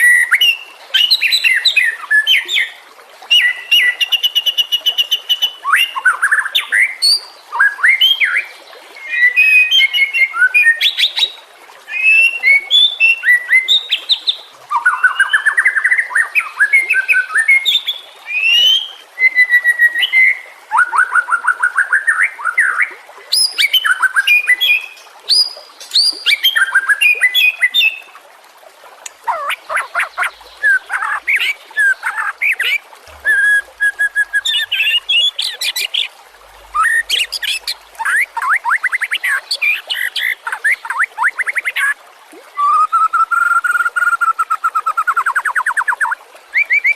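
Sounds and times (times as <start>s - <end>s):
bird singing whistled phrases: 29.3s - 36.1s, 42.6s - 46.9s.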